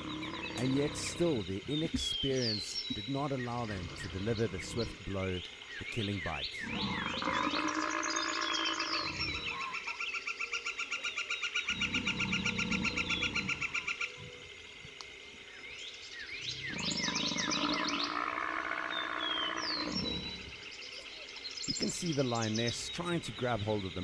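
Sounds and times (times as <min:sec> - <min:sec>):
low rumbling animal sound: 0:00.0 - 0:09.9, 0:11.6 - 0:14.7, 0:16.4 - 0:20.7
chirping and trilling insects: 0:00.0 - 0:24.0.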